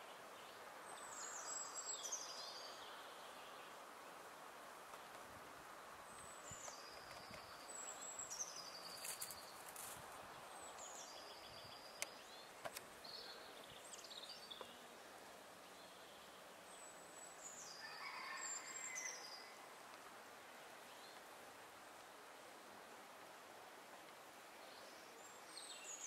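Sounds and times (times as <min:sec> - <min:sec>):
songbirds singing: 0:00.0 - 0:05.2, 0:06.0 - 0:19.7, 0:24.4 - 0:26.0
faint outdoor hiss: 0:00.0 - 0:26.0.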